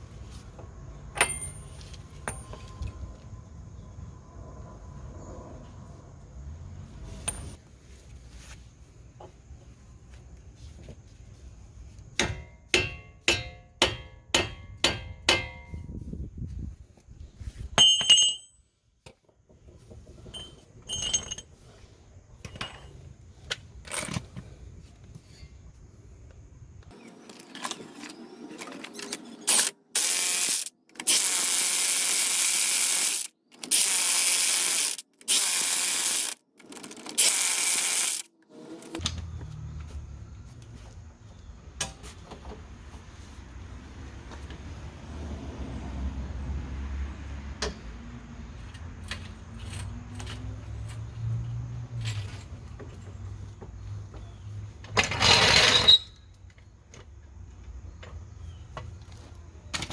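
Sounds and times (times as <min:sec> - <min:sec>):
power tool bursts: 0:29.5 - 0:36.4, 0:37.2 - 0:38.3
ratchet wrench clicking: 0:29.5 - 0:38.3.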